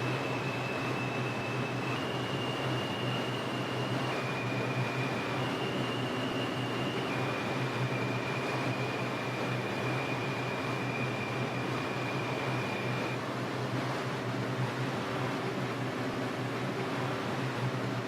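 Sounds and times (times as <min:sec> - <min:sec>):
subway car rumbling hiss: 0:00.0 - 0:18.0.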